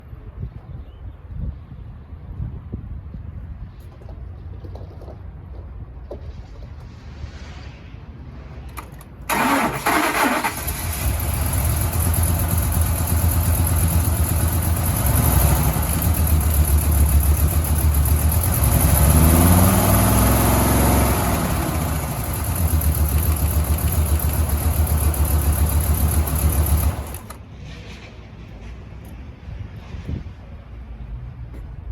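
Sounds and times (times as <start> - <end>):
engine starter cranking: 8.7 - 27.4
truck engine idling and revving: 8.7 - 28.8.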